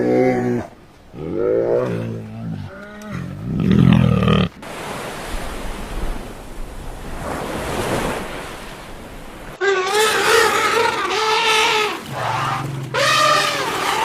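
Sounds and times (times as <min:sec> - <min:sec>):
animal call: 0:09.6 - 0:14.0.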